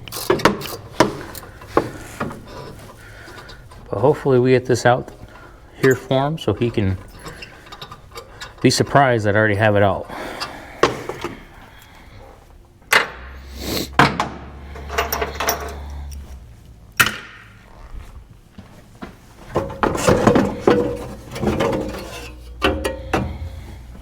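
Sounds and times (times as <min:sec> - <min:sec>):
metal clanks and knocks: 0:00.0 - 0:04.1, 0:05.1 - 0:09.0, 0:12.9 - 0:13.4, 0:14.0 - 0:16.1, 0:19.4 - 0:24.0
metal scraping and rattling: 0:00.0 - 0:11.6, 0:14.5 - 0:17.0, 0:19.3 - 0:24.0.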